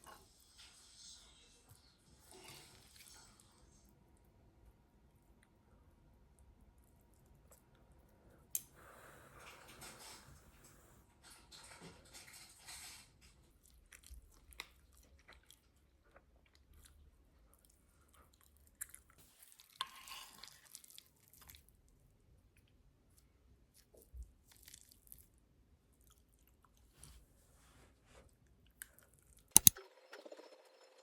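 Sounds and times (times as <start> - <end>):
small clicks: 29.5 - 29.8.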